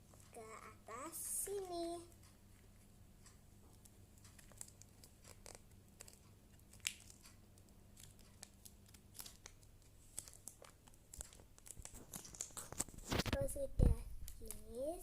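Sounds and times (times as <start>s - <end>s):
paper crackling and rustling: 4.2s - 14.8s.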